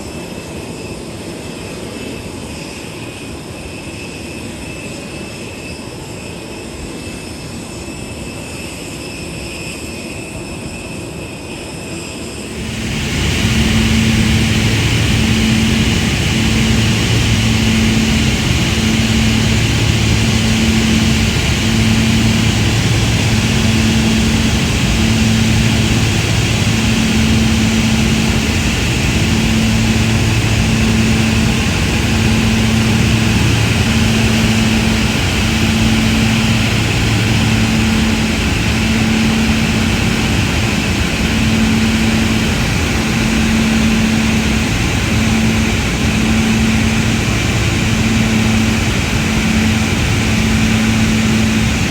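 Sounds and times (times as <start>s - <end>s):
low hum breaking: 12.5s - 51.9s.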